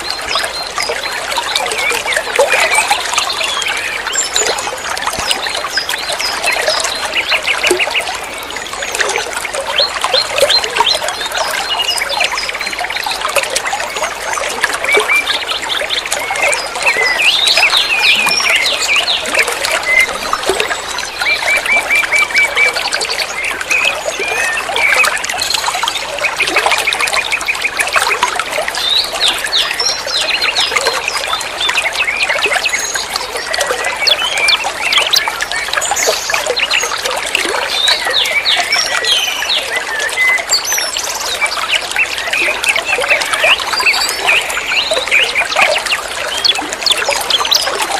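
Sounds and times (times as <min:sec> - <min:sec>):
water trickling and flowing: 0:00.0 - 0:47.9
small birds chirping: 0:09.5 - 0:47.8.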